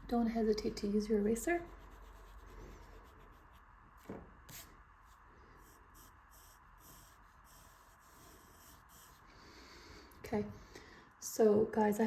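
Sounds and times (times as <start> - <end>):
pencil scratching on paper: 1.6 - 3.7, 4.5 - 9.3.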